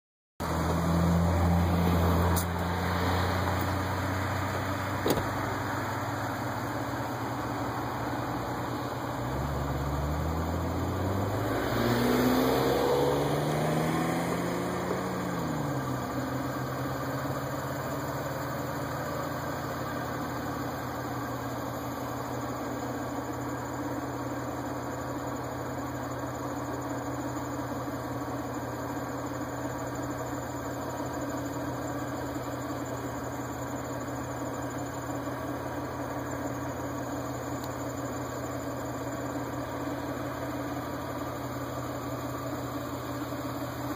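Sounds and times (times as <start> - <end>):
vehicle passing by: 0.4 - 6.2, 9.4 - 15.8
car engine idling hum: 0.4 - 43.9.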